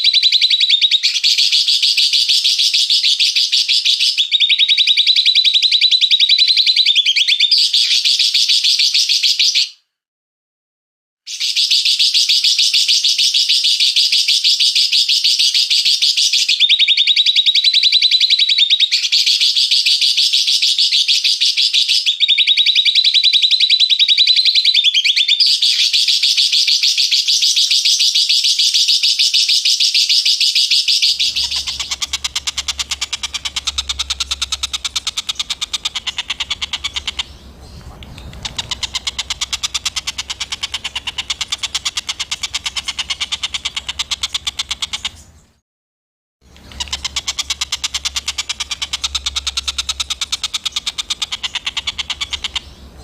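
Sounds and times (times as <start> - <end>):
songbird chattering calls: 30.9 - 45.5, 46.5 - 53.0
low hum: 31.2 - 43.1.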